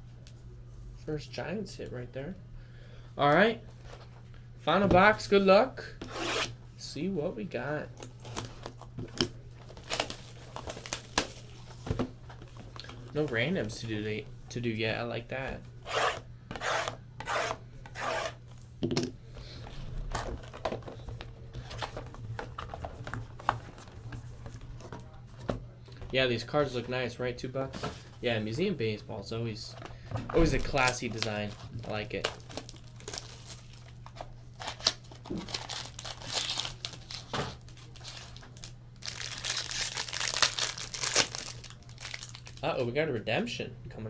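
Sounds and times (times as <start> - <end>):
wrapper tearing: 8.0 - 11.8, 30.5 - 42.7
cards clicking and rustling: 8.0 - 13.9, 30.3 - 42.6.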